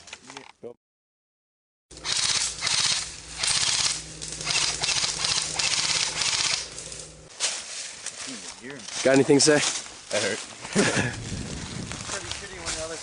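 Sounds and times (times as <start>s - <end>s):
airsoft guns firing rapid bursts: 2.0s - 6.7s.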